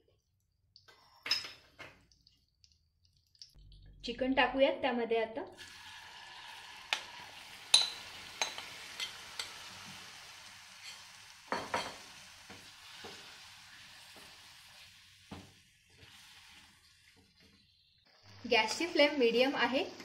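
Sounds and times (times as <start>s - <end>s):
chicken sizzling in oil: 5.6s - 20.0s.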